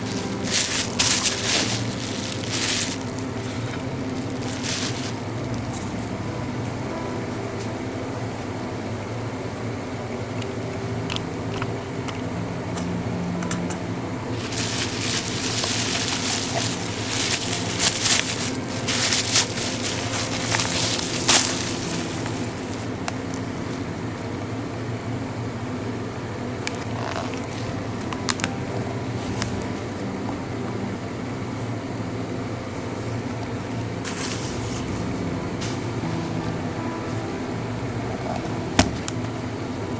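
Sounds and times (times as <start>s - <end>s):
packaging rustling and crinkling: 0.0s - 6.0s, 14.4s - 23.4s
low hum: 0.0s - 39.9s.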